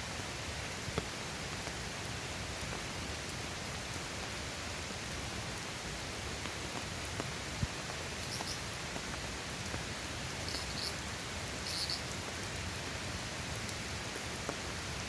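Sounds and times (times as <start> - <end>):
hiss of water: 0.0 - 15.0
faint ticks: 6.7 - 12.1.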